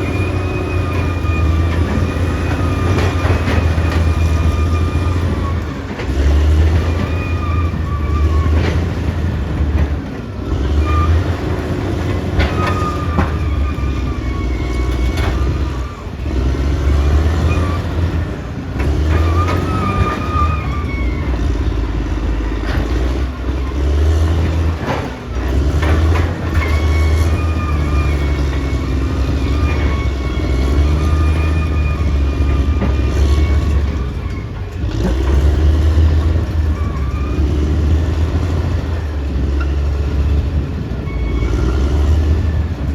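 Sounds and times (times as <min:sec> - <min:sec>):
bulldozer diesel engine under load: 0:00.0 - 0:42.9
wavering high squeal: 0:26.4 - 0:34.6.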